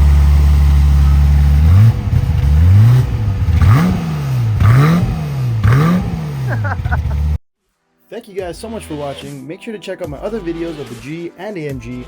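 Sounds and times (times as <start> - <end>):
car engine revving: 0.0 - 7.4.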